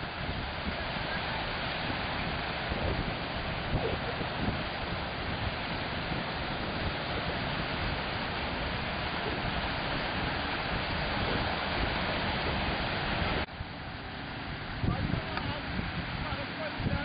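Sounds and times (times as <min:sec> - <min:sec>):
wash of sea water: 0:00.0 - 0:17.0
wind buffeting microphone: 0:00.0 - 0:17.0.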